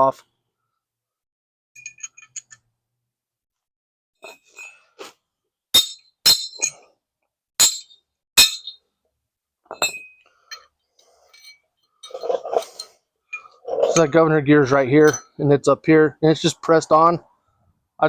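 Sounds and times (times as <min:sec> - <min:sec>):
metal tools clattering: 0:01.8 - 0:02.6, 0:07.6 - 0:08.8, 0:09.7 - 0:14.2.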